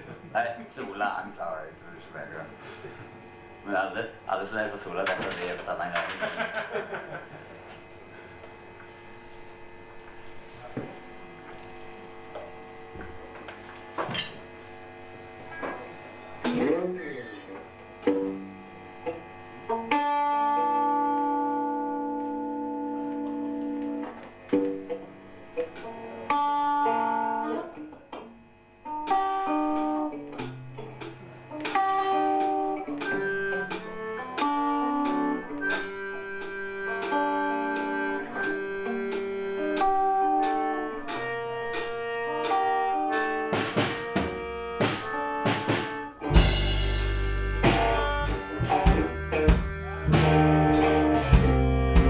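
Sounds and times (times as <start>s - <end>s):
live rock band: 28.9s - 30.7s, 31.6s - 52.0s
heavy drum hits: 43.6s - 52.0s.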